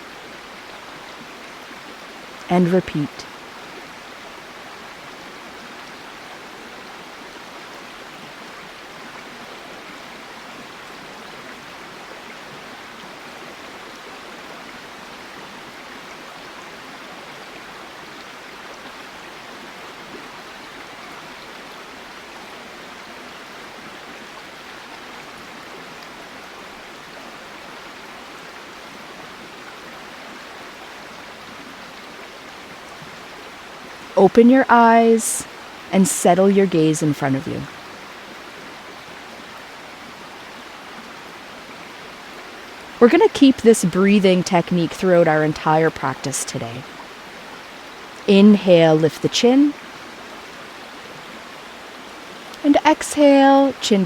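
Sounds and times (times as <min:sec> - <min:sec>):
river flowing over rocks: 0:37.7 - 0:43.0, 0:46.8 - 0:48.2, 0:49.5 - 0:52.6.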